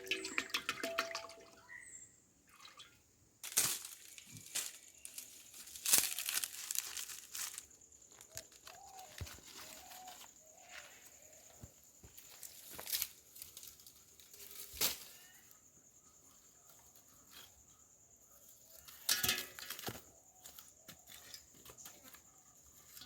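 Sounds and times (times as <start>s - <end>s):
rustling: 3.4s - 11.5s.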